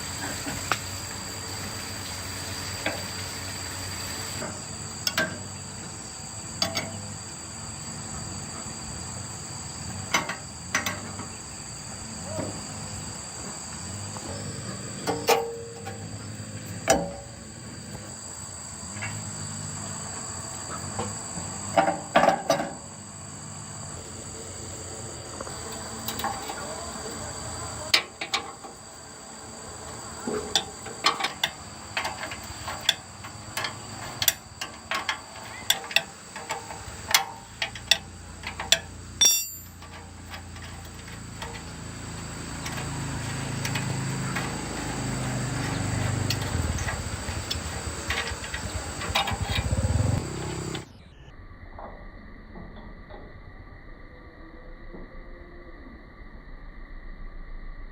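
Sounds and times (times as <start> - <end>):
insects chirring: 0.0 - 57.9
metallic tool clinks and knocks: 39.2 - 40.0.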